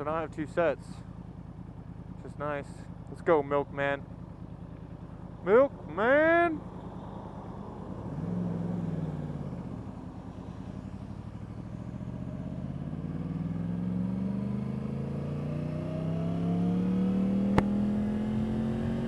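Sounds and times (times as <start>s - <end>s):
motorcycle engine revving: 6.9s - 19.0s.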